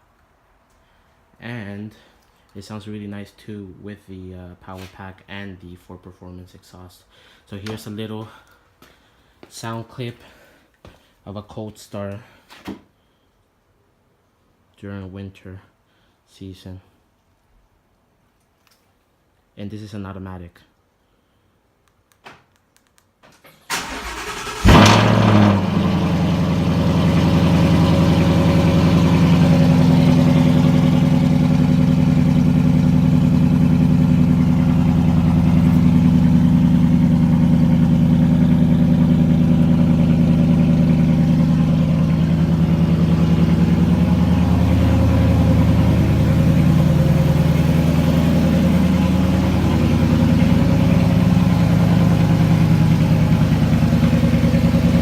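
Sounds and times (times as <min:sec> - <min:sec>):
engine flaring and idling: 0:23.7 - 0:55.0.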